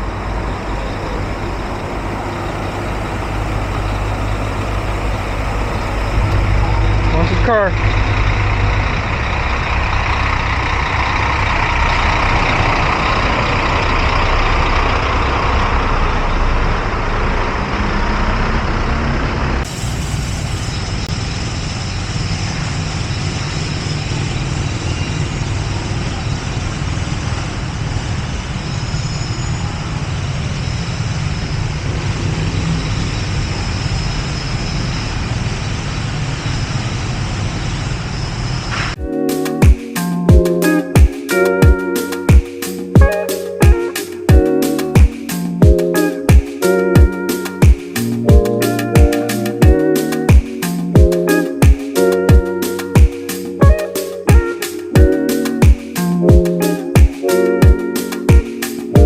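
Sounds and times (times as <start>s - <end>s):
loud mechanical rumble: 0.0s - 39.2s.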